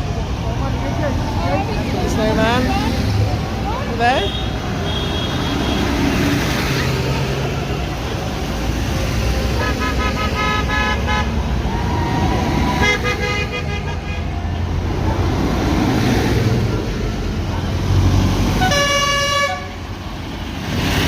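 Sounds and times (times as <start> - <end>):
low rumble of engines: 0.0 - 21.0
vehicle horns tooting: 4.1 - 6.0, 9.5 - 11.5, 12.8 - 14.4, 18.6 - 19.8.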